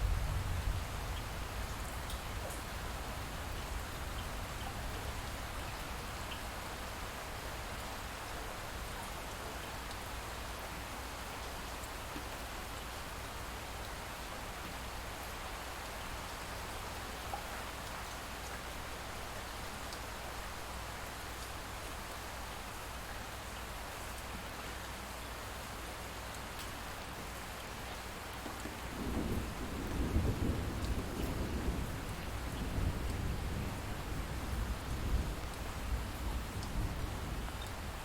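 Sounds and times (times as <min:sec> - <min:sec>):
light rain falling: 0:00.0 - 0:38.0
distant thunder rumbling: 0:28.8 - 0:37.5.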